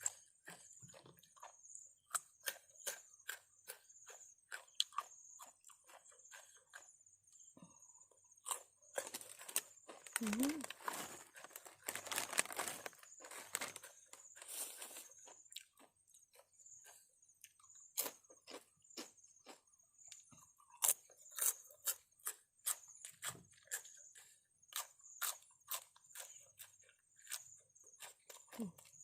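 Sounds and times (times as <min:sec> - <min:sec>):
crunchy chewing of food: 0:00.0 - 0:29.0
rustling: 0:09.0 - 0:15.1.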